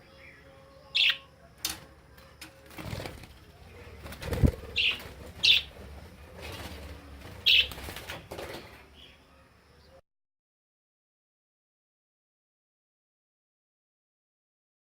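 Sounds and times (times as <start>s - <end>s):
wings fluttering: 1.7s - 9.0s.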